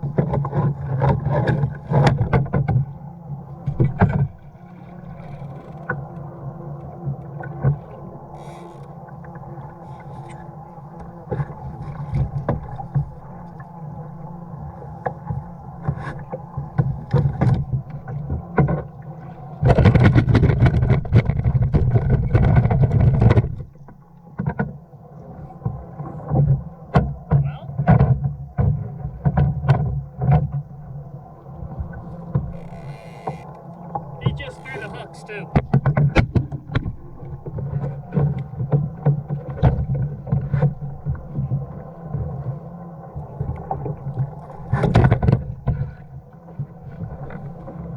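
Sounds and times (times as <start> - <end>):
water sloshing against hull: 0.0 - 47.9
water rushing and splashing: 31.9 - 35.8.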